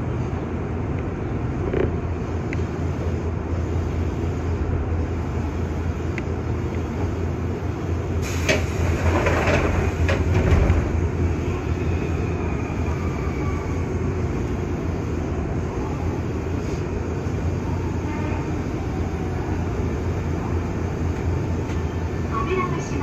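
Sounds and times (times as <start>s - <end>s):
electric train interior hum: 0.0s - 23.0s
rattling clatter: 8.9s - 10.9s.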